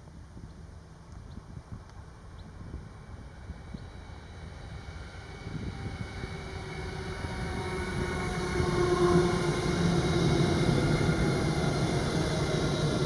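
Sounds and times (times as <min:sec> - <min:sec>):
electric train rumble: 0:02.2 - 0:13.0
steady tonal hum: 0:04.0 - 0:13.0.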